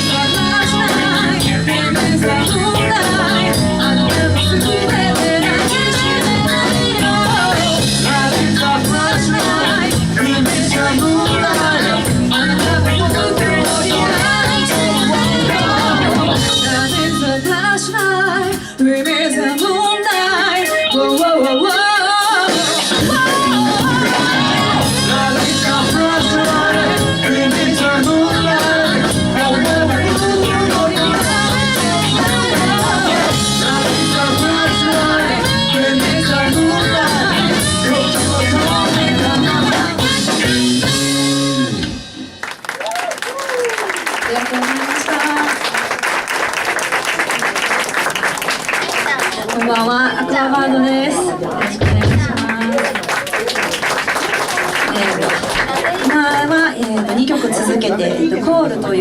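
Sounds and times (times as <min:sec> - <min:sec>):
lead singer singing: 0:00.0 - 0:41.7
live band playing pop-rock: 0:00.0 - 0:59.0.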